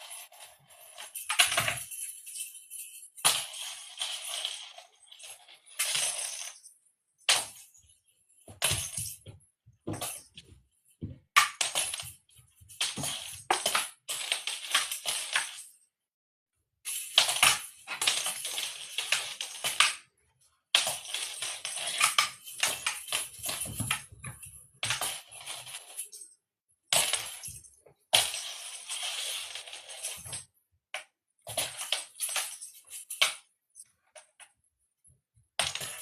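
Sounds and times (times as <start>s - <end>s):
cat toy jingling and rattling: 21.8s - 26.1s.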